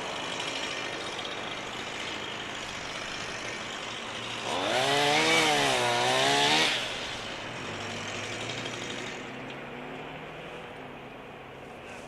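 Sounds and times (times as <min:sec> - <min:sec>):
chainsaw revving: 0:00.0 - 0:09.6.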